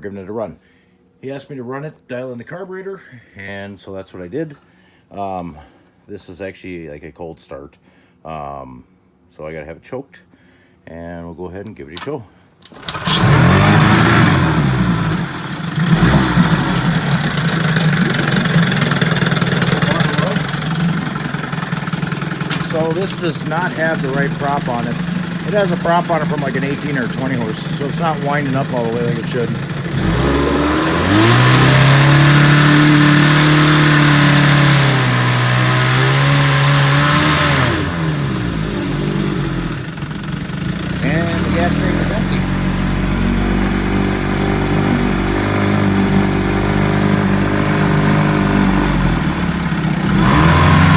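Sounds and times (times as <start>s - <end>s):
outboard motor starting and running: 12.6s - 50.9s.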